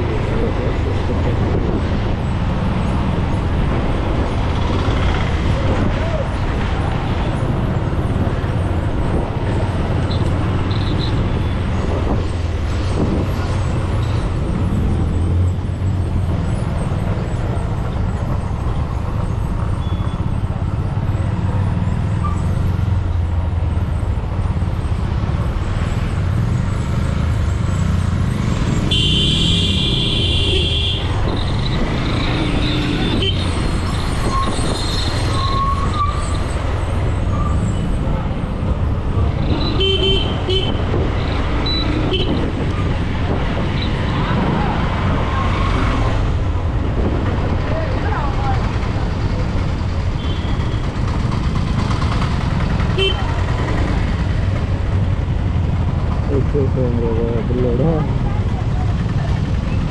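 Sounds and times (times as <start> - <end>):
motorcycle engine on highway: 25.8 - 33.4, 46.2 - 56.5
vehicle horn honking: 28.8 - 31.1, 53.0 - 53.2.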